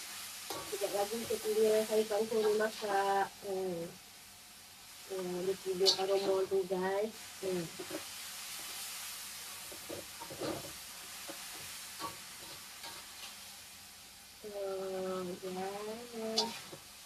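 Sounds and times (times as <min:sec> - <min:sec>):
vegetables sizzling in a pan: 0:00.0 - 0:17.0
stirring scrapes and knocks: 0:07.7 - 0:08.1, 0:09.7 - 0:13.4.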